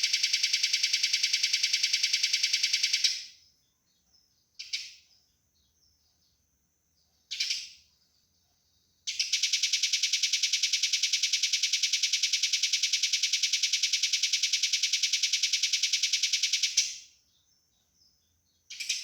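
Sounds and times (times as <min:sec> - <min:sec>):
sparrow chattering: 0:07.3 - 0:07.8, 0:18.7 - 0:19.0.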